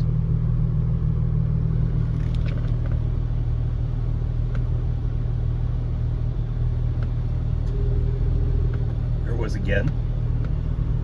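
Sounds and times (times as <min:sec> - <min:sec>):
car engine idling: 0:00.0 - 0:11.0
faint engine ticks: 0:04.4 - 0:04.8, 0:06.8 - 0:10.8.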